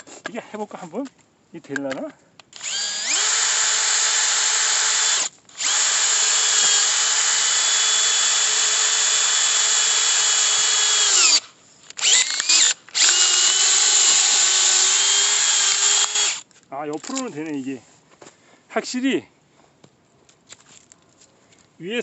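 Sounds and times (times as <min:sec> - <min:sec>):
hammer drill motor running: 0:02.6 - 0:16.4.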